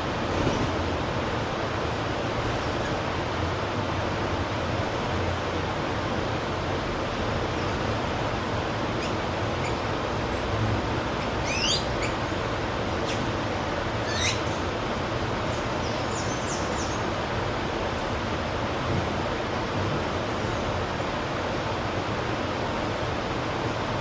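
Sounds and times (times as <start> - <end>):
steady rushing background noise: 0.0 - 24.0
bird sweeping calls: 11.2 - 12.4, 13.0 - 14.7.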